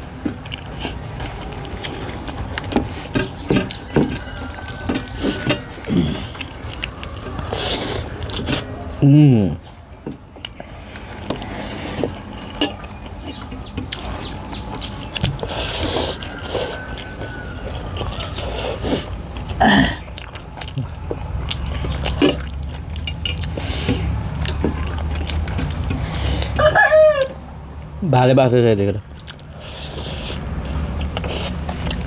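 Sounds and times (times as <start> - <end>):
chewing with small clicks: 0.2 - 4.9, 6.1 - 8.7, 9.7 - 26.6, 28.9 - 32.0
chicken calling: 26.2 - 27.5.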